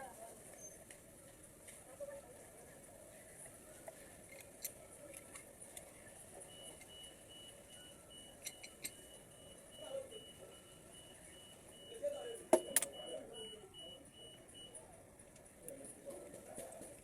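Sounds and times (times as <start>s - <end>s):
high-pitched beeps: 6.6s - 14.8s.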